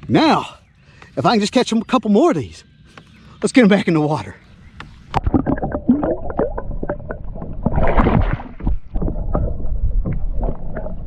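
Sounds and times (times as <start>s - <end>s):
fish splashing into water: 5.2s - 9.3s.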